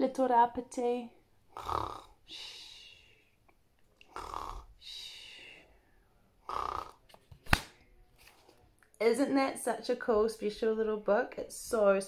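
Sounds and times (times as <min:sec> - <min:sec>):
woman pretend snoring: 0:01.5 - 0:02.2, 0:04.1 - 0:04.8, 0:06.5 - 0:07.0.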